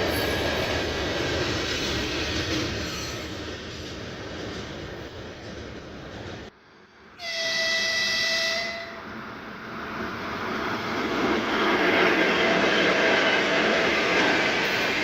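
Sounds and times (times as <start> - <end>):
freight train rolling: 0.0 - 15.0
locomotive horn blast: 7.2 - 9.0.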